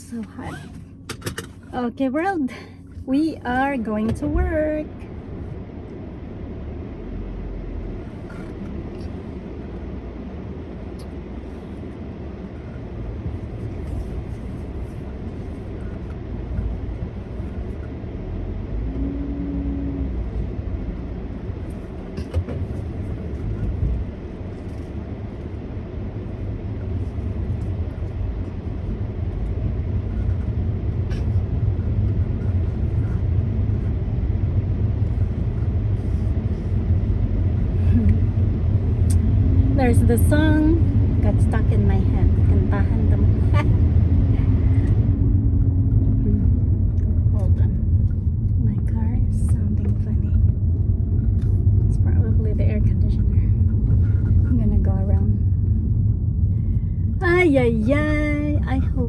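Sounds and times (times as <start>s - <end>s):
car engine and road noise: 0.0s - 59.0s
short low hum: 0.0s - 59.0s.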